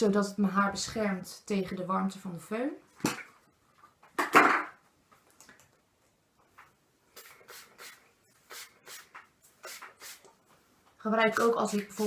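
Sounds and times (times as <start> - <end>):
spray bottle spraying: 7.2 - 10.3, 11.3 - 12.0.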